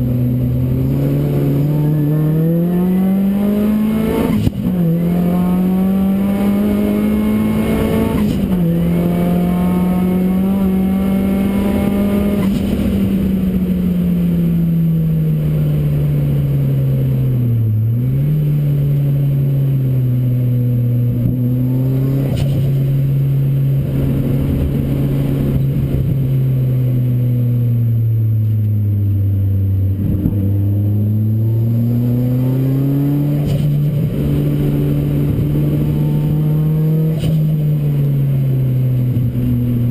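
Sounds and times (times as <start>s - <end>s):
racing car engine revving: 0.0s - 13.4s, 20.8s - 26.2s, 29.7s - 38.4s.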